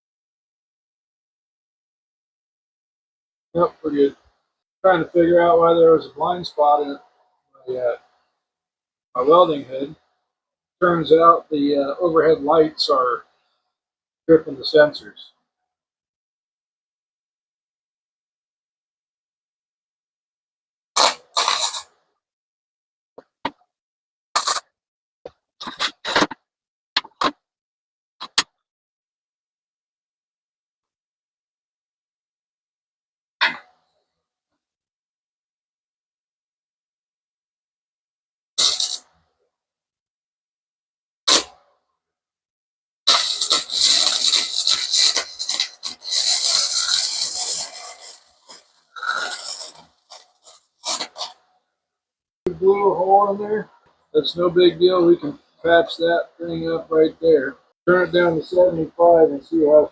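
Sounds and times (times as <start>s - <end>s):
welder arc crackling: 38.6s - 39.0s, 43.1s - 50.7s.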